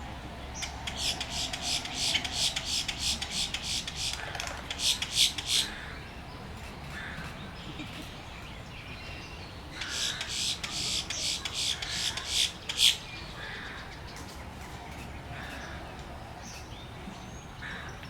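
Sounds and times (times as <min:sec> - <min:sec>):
nestlings rasping begging calls: 0:00.6 - 0:05.9, 0:09.8 - 0:13.0.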